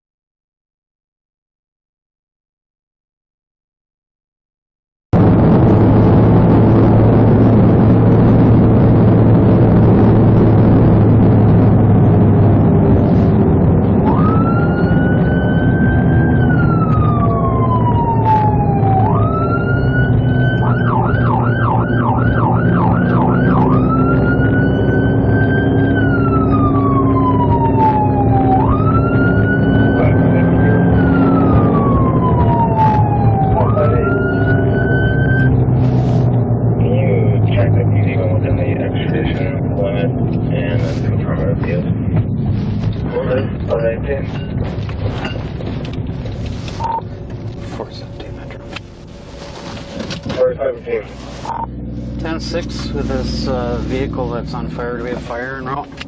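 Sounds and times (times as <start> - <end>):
engine and road noise: 5.2 - 56.0
police siren wailing and yelping: 9.8 - 36.4, 51.4 - 51.7.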